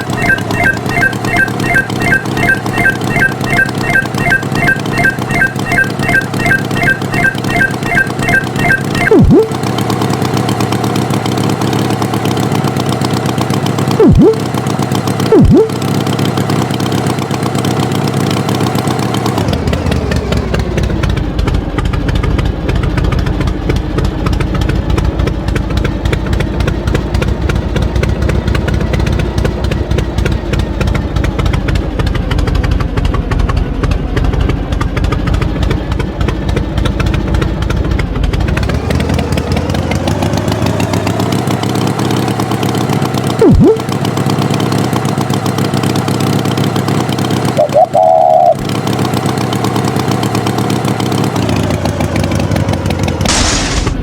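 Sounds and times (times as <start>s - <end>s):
tractor engine running: 0.0s - 54.0s
sharp loud pop: 53.3s - 54.0s.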